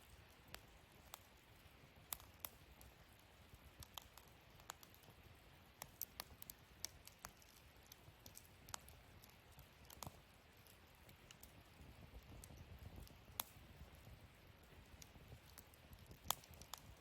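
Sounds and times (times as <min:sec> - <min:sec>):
low steady hiss: 0:00.0 - 0:17.0
wood fire crackling: 0:00.0 - 0:17.0.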